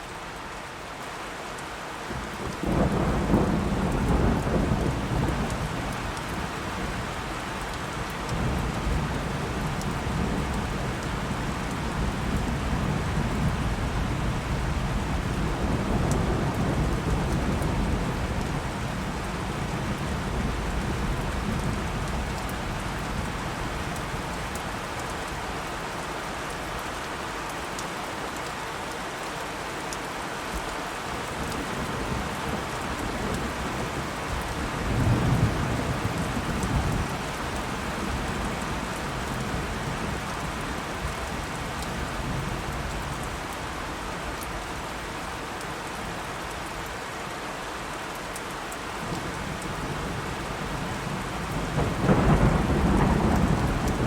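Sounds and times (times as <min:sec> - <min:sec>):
heavy rain: 0:00.0 - 0:54.0
rolling thunder: 0:49.2 - 0:54.0.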